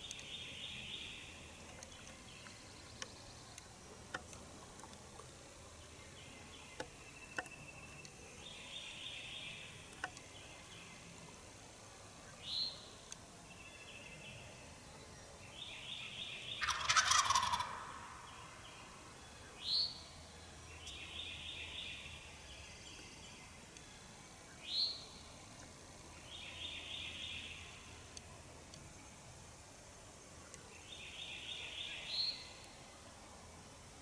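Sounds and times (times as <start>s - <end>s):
turkey gobbling: 16.6s - 18.2s.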